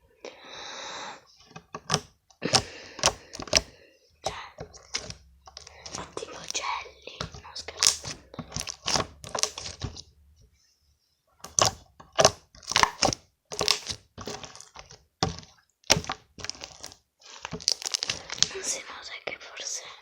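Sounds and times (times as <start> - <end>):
slime squeezed crackling pops: 7.7 - 9.9, 11.6 - 14.6.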